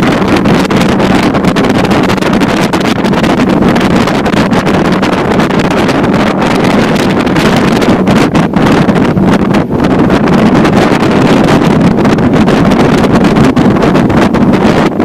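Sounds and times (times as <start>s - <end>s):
motorboat engine humming: 0.0s - 15.0s
wind buffeting microphone: 0.0s - 15.0s.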